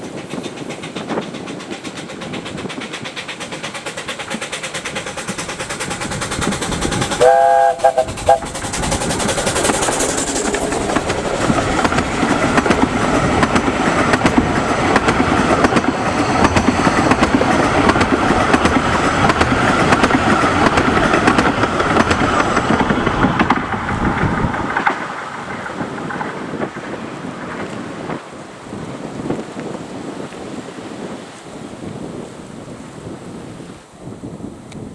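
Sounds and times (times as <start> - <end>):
wheels clattering over rails: 0.0 - 28.3
steam train pulling away: 0.0 - 31.1.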